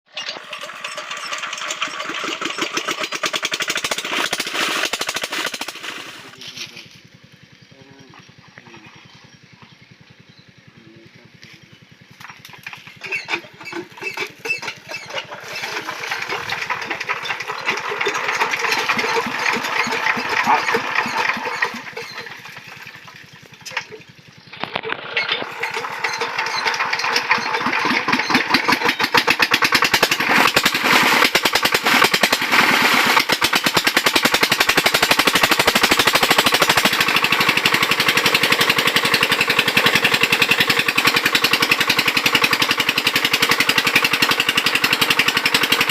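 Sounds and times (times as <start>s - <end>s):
diesel engine starting and running: 0.1s - 45.9s.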